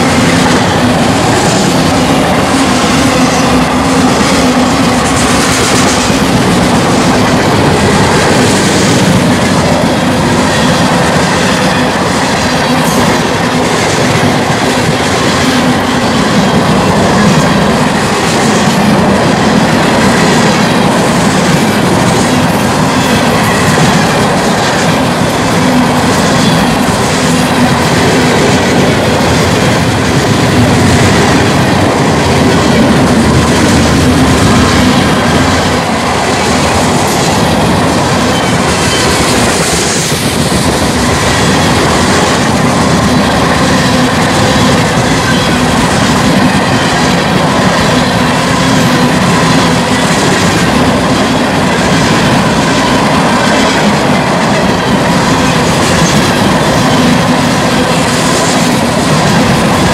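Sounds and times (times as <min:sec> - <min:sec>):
freight train cars rolling: 0:00.0 - 0:59.9.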